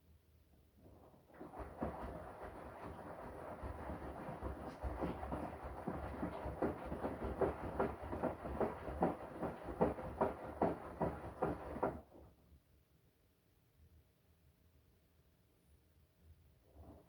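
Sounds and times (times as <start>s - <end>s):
washing machine drum sloshing: 1.4s - 12.1s.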